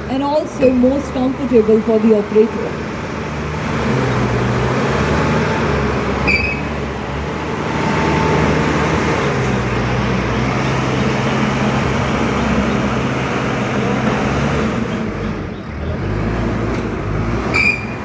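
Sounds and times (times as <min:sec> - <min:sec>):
diesel engine running under load: 0:00.0 - 0:18.0
brief high squeak: 0:06.3 - 0:06.7, 0:17.5 - 0:18.0.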